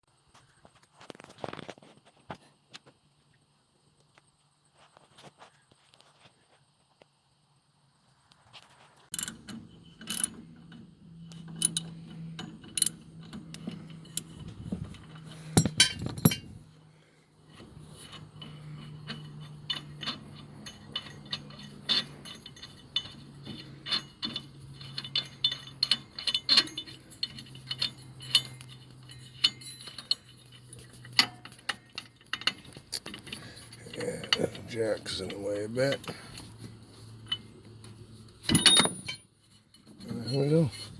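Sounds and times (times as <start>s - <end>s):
ratchet wrench clicking: 9.1s - 9.4s, 10.1s - 10.3s, 11.4s - 12.0s, 12.7s - 14.4s
metal tools clinking: 9.1s - 16.6s, 17.6s - 36.4s, 38.4s - 40.9s.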